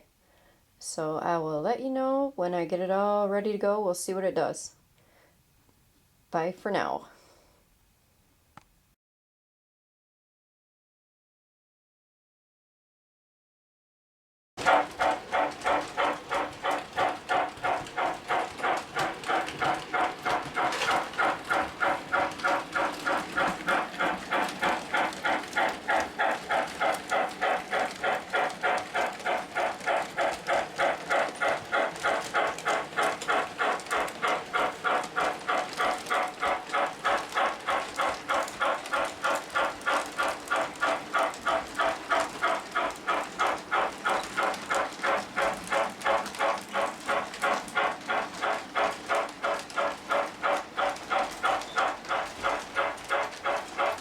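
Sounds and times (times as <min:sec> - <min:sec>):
model train running on track: 0:14.6 - 0:54.0.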